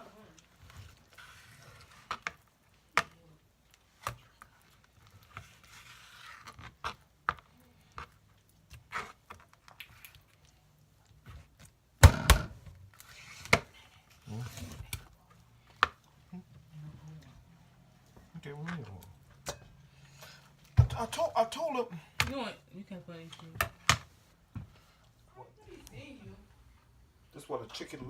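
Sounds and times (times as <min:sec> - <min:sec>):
soft scraping: 0:00.5 - 0:02.2, 0:04.4 - 0:07.0.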